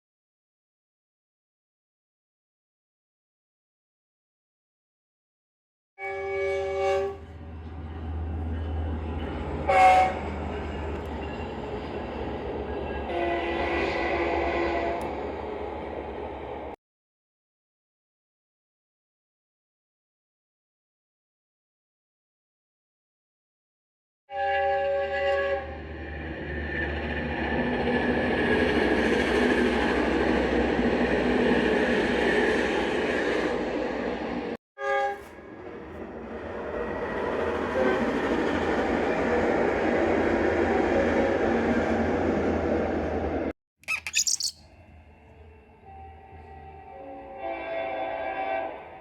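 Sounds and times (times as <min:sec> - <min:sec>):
locomotive air horn: 0:06.0 - 0:07.4, 0:09.6 - 0:10.4, 0:13.1 - 0:15.1, 0:24.3 - 0:25.8, 0:34.8 - 0:35.4, 0:37.6 - 0:38.2, 0:46.0 - 0:49.0
train rumbling: 0:06.2 - 0:16.8, 0:24.6 - 0:43.5.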